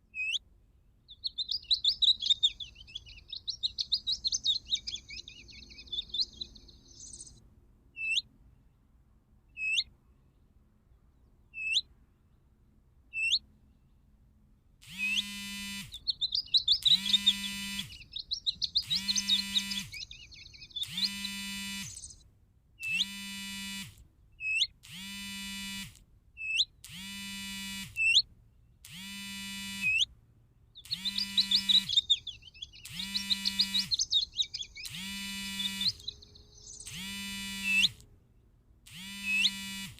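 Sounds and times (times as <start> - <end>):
electronic bird chirping trills: 0.2 - 0.4, 1.1 - 7.4, 8.0 - 8.3, 9.6 - 9.9, 11.6 - 11.9, 13.1 - 13.5, 14.8 - 22.2, 22.8 - 30.1, 30.7 - 38.0, 38.9 - 39.9
buzzy distorted bird call: 1.1 - 7.4, 14.8 - 22.2, 22.8 - 30.1, 30.7 - 38.0, 38.9 - 39.9.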